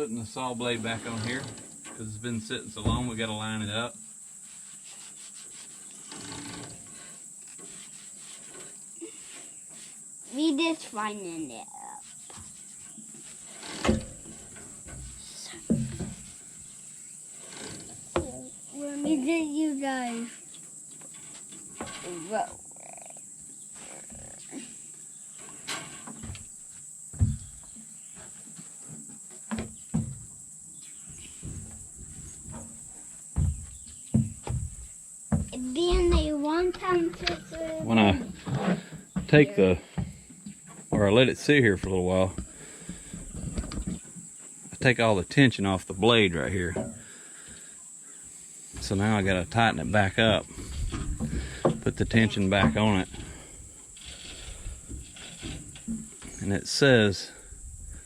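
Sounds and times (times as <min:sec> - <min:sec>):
high insect chorus: 0:00.0 - 0:58.0
steady high hiss: 0:00.0 - 0:58.0
handling knocks and thumps: 0:00.9 - 0:03.5, 0:12.2 - 0:16.5, 0:17.5 - 0:19.2, 0:25.6 - 0:30.4, 0:31.0 - 0:44.4, 0:48.7 - 0:56.6.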